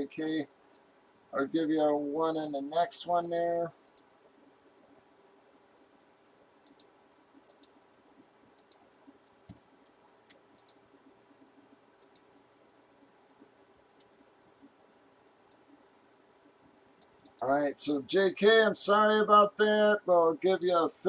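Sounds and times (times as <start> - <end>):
low room hum: 0.0 - 21.0
computer mouse clicks: 3.8 - 4.4, 6.6 - 7.8, 8.5 - 12.3, 15.4 - 15.7, 16.4 - 17.4.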